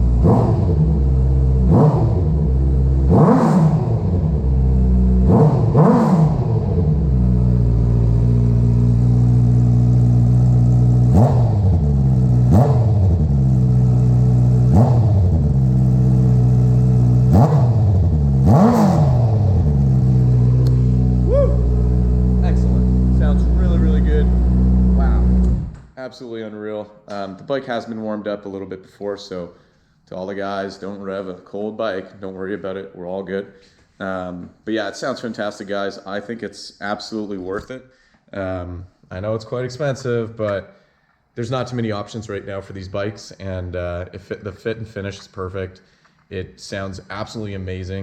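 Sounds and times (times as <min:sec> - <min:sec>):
motorcycle engine revving: 0:00.0 - 0:25.8.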